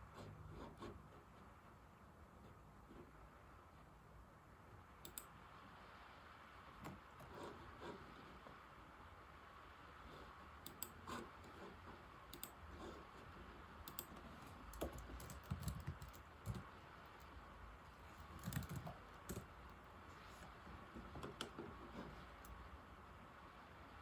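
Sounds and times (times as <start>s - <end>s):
laptop keyboard typing: 5.0s - 5.3s, 10.1s - 22.6s.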